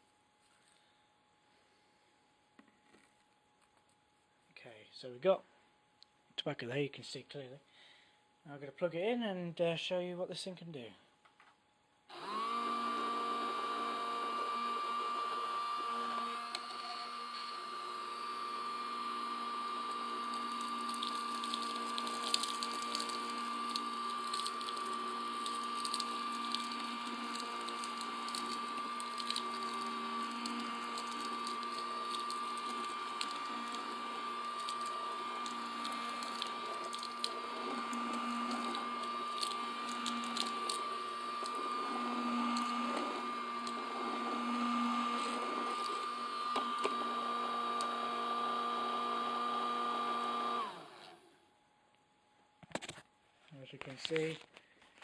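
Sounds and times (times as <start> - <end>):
vacuum cleaner whining: 12.1 - 51.4.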